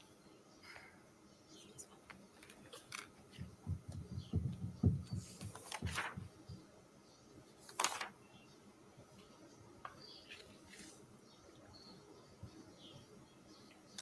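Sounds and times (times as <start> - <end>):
soft low thumps: 3.4 - 6.6.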